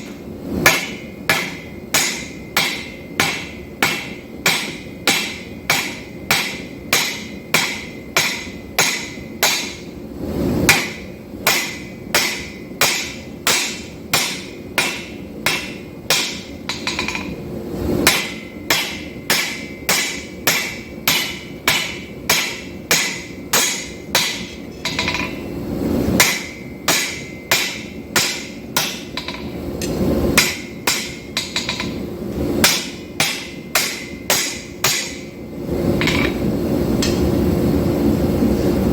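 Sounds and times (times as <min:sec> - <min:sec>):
forging hammer on steel: 0:00.0 - 0:10.0, 0:10.6 - 0:37.3.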